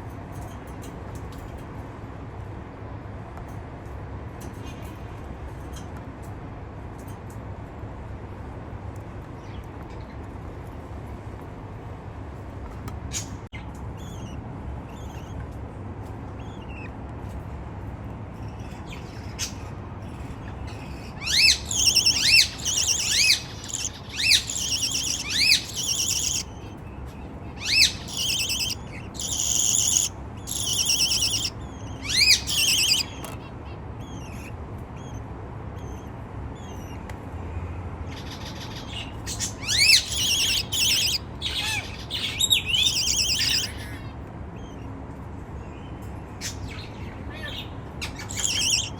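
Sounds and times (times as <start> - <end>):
budgerigars squawking chirps: 18.6 - 26.8, 27.5 - 35.2, 38.1 - 44.8, 46.4 - 48.9.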